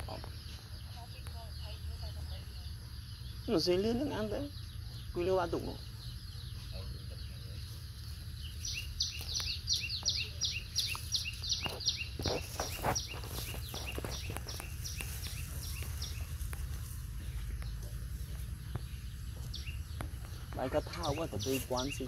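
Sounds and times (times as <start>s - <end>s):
bird calling: 0.0s - 22.0s
low rumble: 13.2s - 20.9s.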